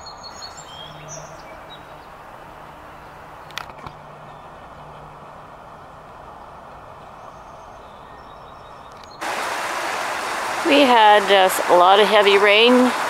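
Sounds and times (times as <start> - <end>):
creek rushing: 9.2 - 13.0
distant rumble: 9.2 - 13.0.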